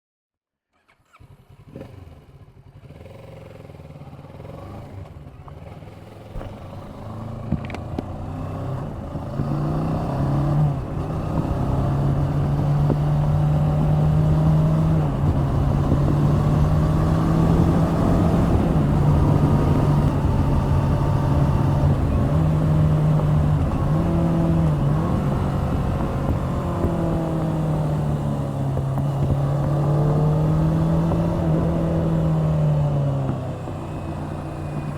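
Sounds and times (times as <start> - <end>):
motorcycle engine riding: 0.7 - 34.9.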